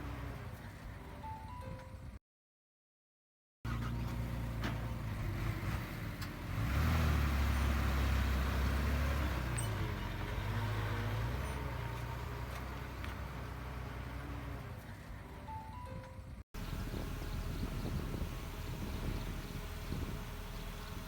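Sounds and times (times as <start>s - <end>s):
heavy diesel machinery engine: 3.7s - 15.5s, 16.6s - 21.0s.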